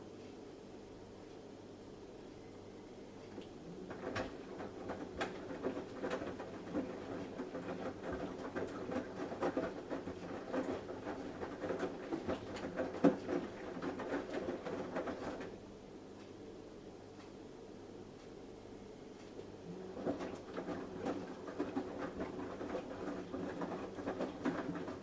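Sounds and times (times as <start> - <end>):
wet laundry tumbling: 3.7 - 15.6, 19.7 - 25.0
washing machine drum turning: 3.8 - 15.6, 19.8 - 25.0.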